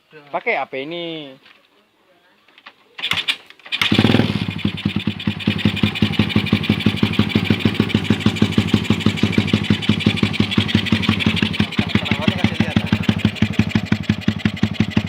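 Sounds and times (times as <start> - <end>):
motorcycle engine idling: 3.8 - 15.0.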